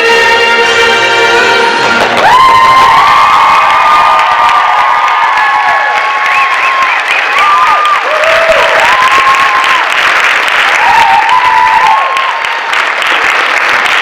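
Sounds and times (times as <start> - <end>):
audience applauding and cheering: 0.0 - 14.0
high held whoops: 2.2 - 10.0, 10.7 - 12.6.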